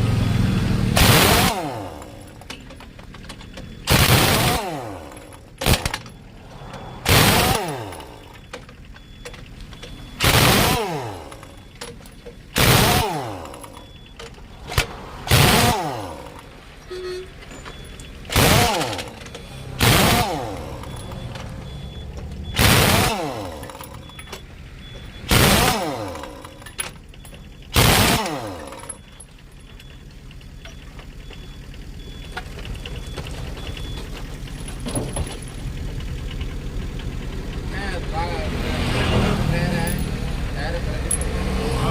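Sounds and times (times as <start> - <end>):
pneumatic impact wrench bursts: 0.9 - 2.5, 3.8 - 6.2, 6.8 - 8.7, 10.1 - 17.0, 18.2 - 21.2, 22.5 - 24.4, 25.1 - 26.9, 27.7 - 29.0
low engine hum: 4.7 - 10.2, 10.8 - 27.8.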